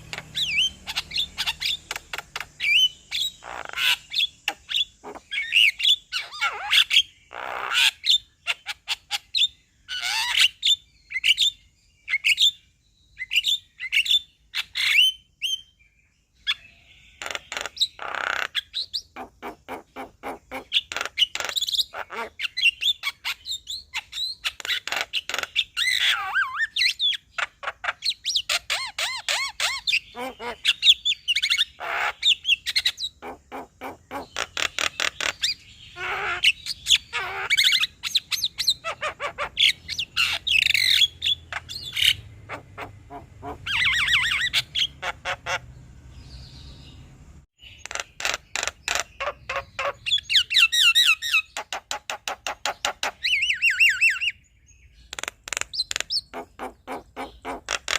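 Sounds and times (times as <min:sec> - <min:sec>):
myna singing and chattering: 0:30.1 - 0:30.8.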